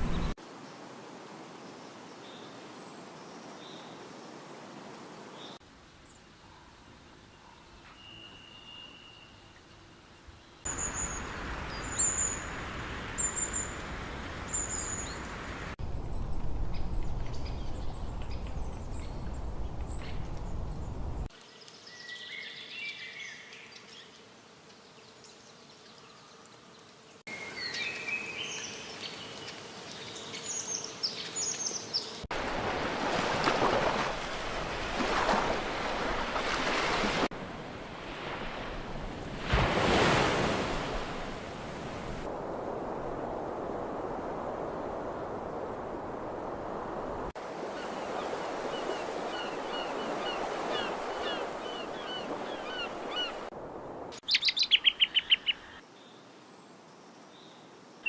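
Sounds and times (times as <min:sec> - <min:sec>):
steady rushing noise: 0:00.0 - 0:00.4
birds chirping and calling: 0:48.1 - 0:53.5.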